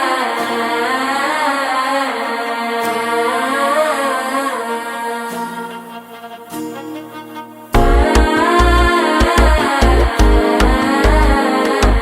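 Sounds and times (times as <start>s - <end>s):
pitch-bending melodic line: 7.8s - 12.0s
steady musical drone: 7.8s - 12.0s.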